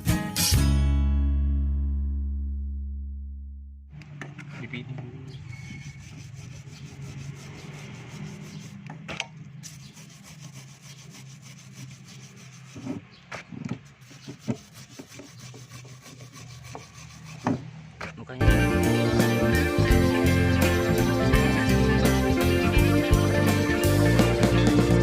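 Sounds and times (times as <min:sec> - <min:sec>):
scraping and rubbing by hand: 0:04.3 - 0:18.2.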